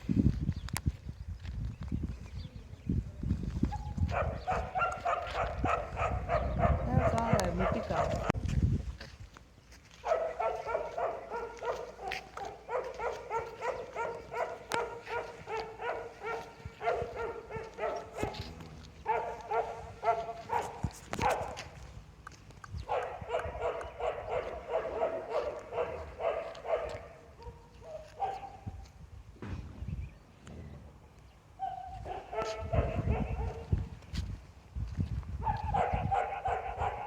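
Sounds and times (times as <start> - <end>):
dog barking: 3.7 - 8.4, 10.0 - 21.8, 22.8 - 28.9, 31.6 - 33.8, 35.4 - 37.0.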